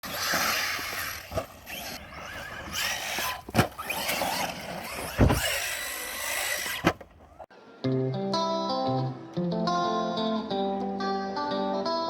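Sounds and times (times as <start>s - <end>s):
tyre and ground noise: 0.0s - 7.5s.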